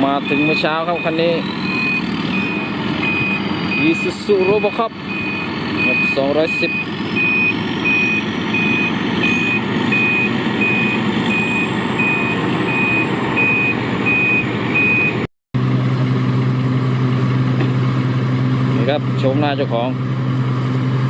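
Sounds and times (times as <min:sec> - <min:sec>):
truck reverse alarm beeping: 0:00.0 - 0:15.3
truck engine running: 0:00.0 - 0:21.0.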